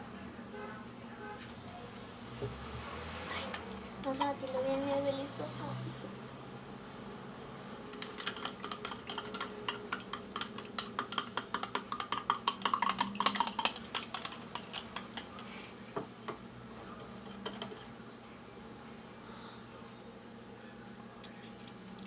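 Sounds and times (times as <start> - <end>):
utensil clicking against container: 8.0 - 15.4.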